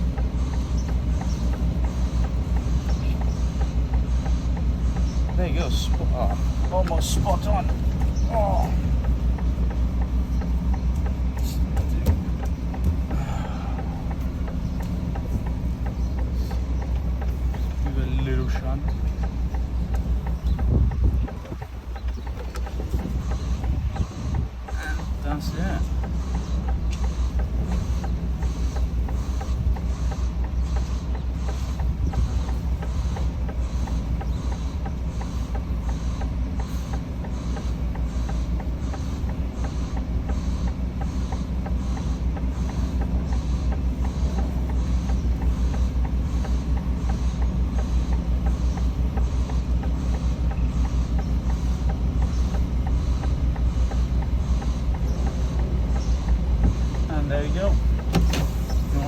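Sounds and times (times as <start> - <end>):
diesel truck engine idling: 0.0 - 59.0
regular ticking: 0.0 - 59.0.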